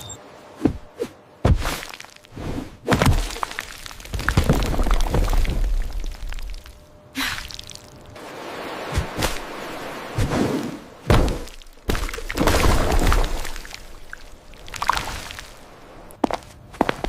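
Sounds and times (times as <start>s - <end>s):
sharp knocks and thuds with swish: 0.6s - 3.6s, 10.2s - 13.4s.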